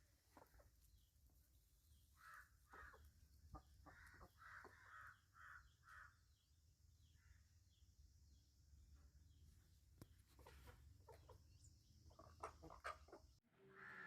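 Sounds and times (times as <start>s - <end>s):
chickens calling: 0.0s - 6.4s, 10.0s - 14.0s.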